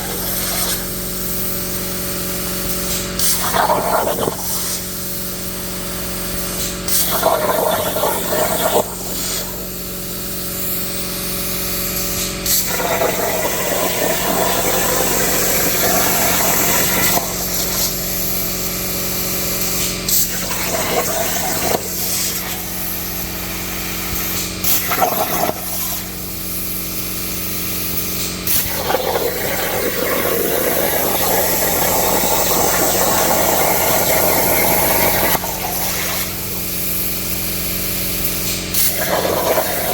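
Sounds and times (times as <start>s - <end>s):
plasma arc hissing: 0.0s - 39.9s.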